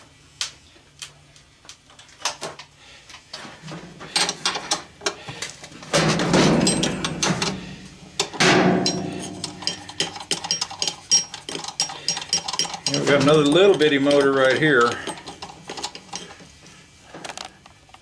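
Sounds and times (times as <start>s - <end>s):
metal hand tools clattering: 6.3s - 7.5s, 8.8s - 16.4s.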